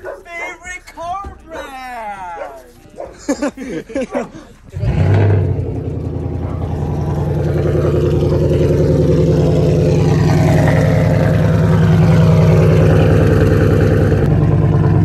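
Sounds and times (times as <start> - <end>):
car engine running: 4.8 - 15.0.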